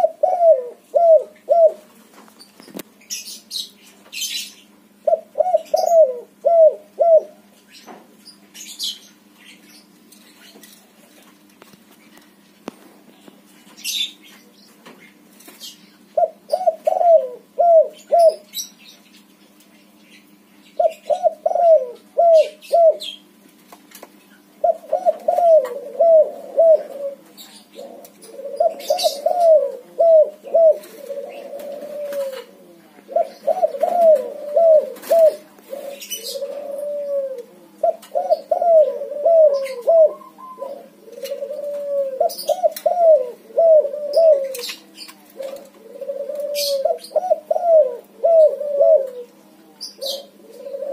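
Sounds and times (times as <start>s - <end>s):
dove cooing: 0.0s - 1.9s, 5.0s - 7.5s, 16.2s - 18.5s, 20.8s - 23.2s, 24.6s - 50.9s
faint steady hum: 0.0s - 50.9s.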